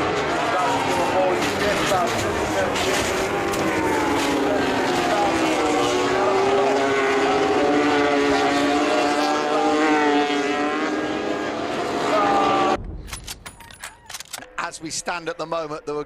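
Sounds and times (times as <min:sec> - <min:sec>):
racing motorcycle engine high revs: 0:00.0 - 0:12.8.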